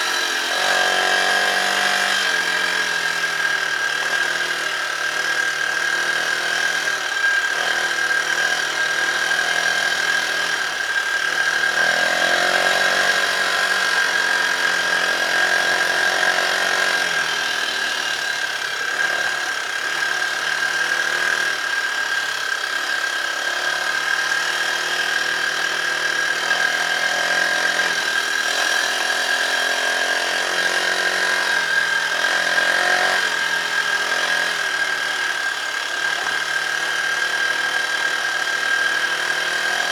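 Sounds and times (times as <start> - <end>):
dirt bike engine revving: 0.0 - 2.7, 11.3 - 17.2.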